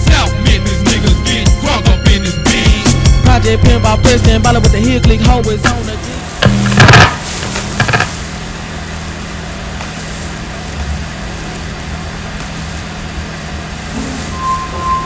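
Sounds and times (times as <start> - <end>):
low droning hum: 3.1 - 15.0.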